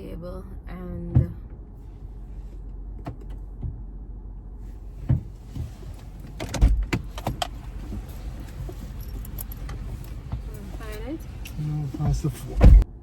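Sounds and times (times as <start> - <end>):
car low rumble: 0.0 - 13.0
clicks and knocks inside car: 1.0 - 1.6, 2.9 - 3.9, 4.9 - 12.9
heavy thud: 12.6 - 12.9.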